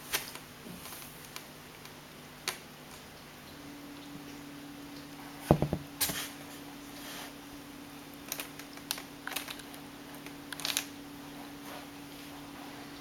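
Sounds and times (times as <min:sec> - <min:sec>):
dull thump: 0:05.5 - 0:05.9.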